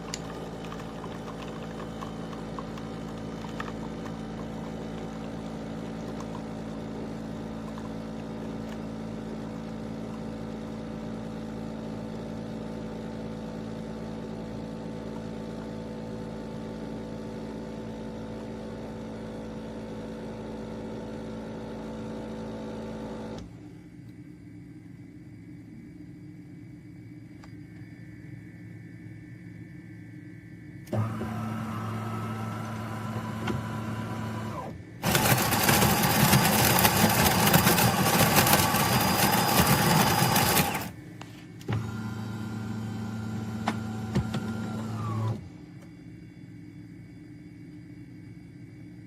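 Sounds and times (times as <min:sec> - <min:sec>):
espresso machine humming: 0:00.0 - 0:23.5, 0:30.9 - 0:45.4.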